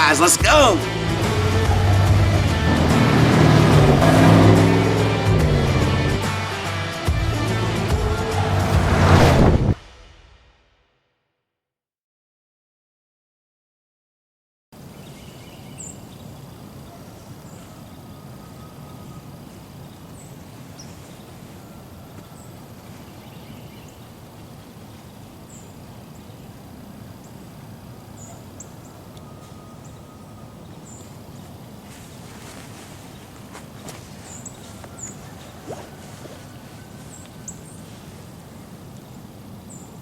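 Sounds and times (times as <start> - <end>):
low rumble of wind: 14.8 - 40.0.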